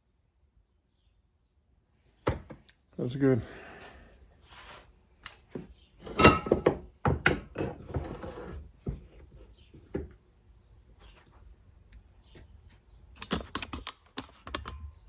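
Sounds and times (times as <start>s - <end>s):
tools clattering on workbench: 6.0s - 8.2s.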